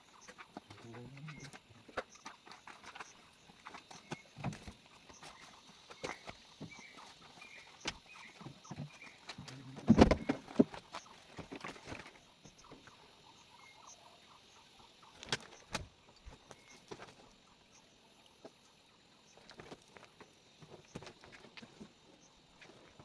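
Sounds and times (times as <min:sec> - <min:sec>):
small knocks and rustles: 0:00.2 - 0:12.9, 0:19.3 - 0:23.0
thumps: 0:08.7 - 0:10.8.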